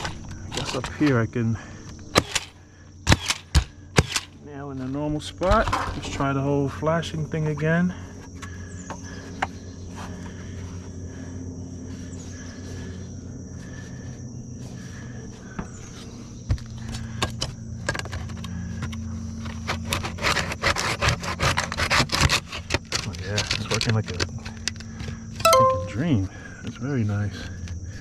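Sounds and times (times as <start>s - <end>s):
steady low hum: 0.0s - 19.9s
steady high tone: 25.5s - 26.0s.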